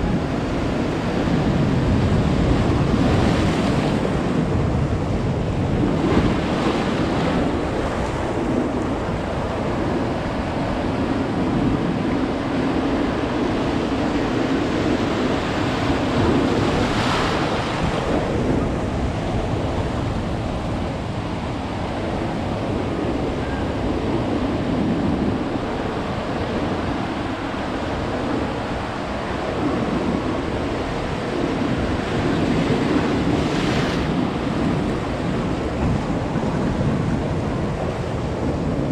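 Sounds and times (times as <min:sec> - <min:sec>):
waves breaking on shore: 0:00.0 - 0:38.9
wind buffeting microphone: 0:00.0 - 0:38.9.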